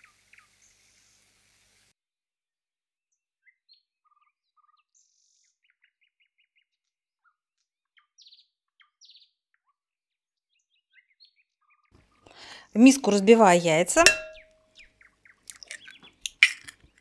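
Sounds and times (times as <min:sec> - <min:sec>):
small birds chirping and whistling: 0:03.4 - 0:07.4, 0:08.0 - 0:09.8, 0:10.5 - 0:11.9, 0:14.8 - 0:16.2.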